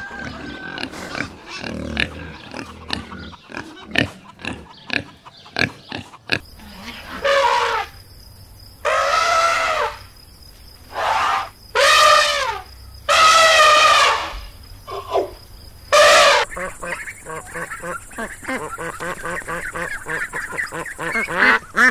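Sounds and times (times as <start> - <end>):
pig grunting: 0.0 - 7.9
elephant trumpeting: 6.7 - 8.0, 8.8 - 10.0, 10.9 - 16.5.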